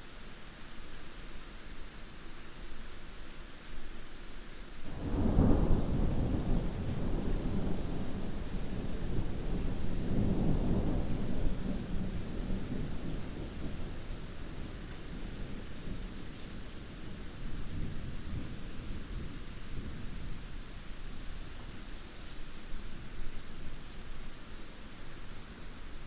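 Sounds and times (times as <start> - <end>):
heavy rain falling: 0.1 - 26.0
thunder rumble: 4.9 - 20.5.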